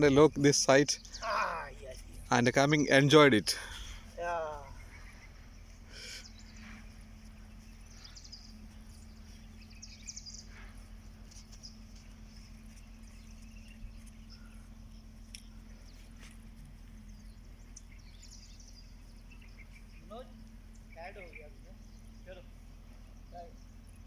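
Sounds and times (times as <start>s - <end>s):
low hum: 0.0s - 24.0s
light clicks: 15.2s - 15.6s.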